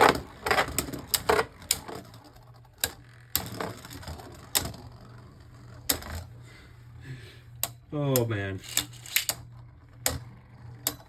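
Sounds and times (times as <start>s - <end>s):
spinning tops clacking together: 0.0s - 4.8s, 8.2s - 9.5s.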